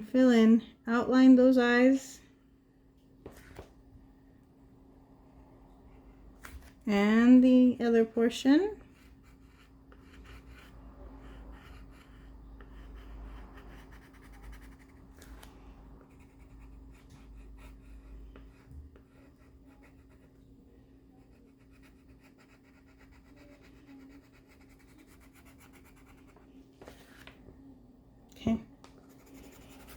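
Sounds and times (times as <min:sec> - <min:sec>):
drawing tool scratching on paper: 0:08.8 - 0:15.4, 0:16.0 - 0:20.4, 0:21.2 - 0:27.1, 0:29.0 - 0:29.9.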